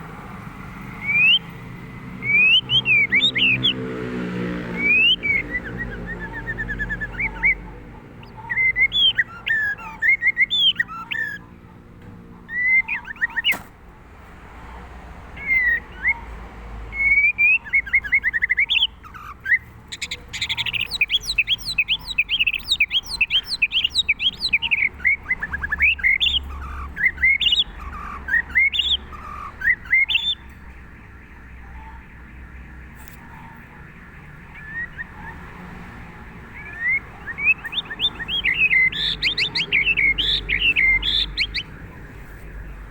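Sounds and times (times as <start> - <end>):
bird singing whistled notes: 17.0 - 30.5, 36.6 - 41.7.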